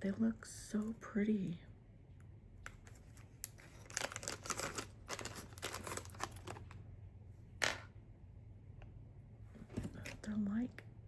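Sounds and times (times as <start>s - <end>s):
packaging crinkling: 3.2s - 6.8s.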